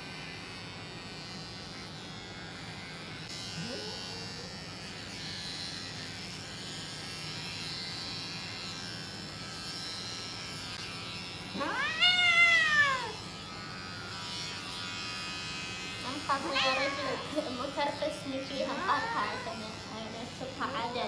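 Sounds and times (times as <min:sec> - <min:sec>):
electric clippers buzzing: 0:00.0 - 0:21.0
cat meowing: 0:11.6 - 0:13.2, 0:16.4 - 0:17.4, 0:18.8 - 0:19.6.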